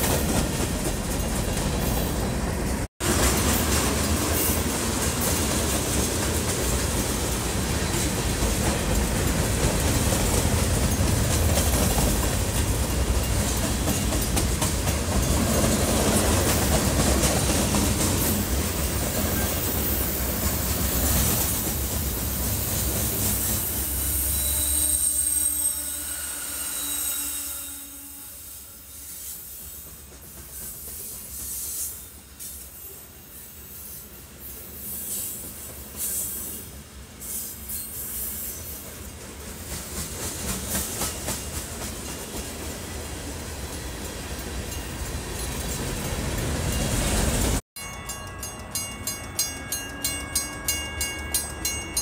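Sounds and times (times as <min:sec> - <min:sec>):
diesel locomotive passing: 0:00.0 - 0:32.4, 0:38.1 - 0:52.0
high wheel squeal: 0:23.3 - 0:29.7
bell ringing rapidly: 0:47.8 - 0:52.0.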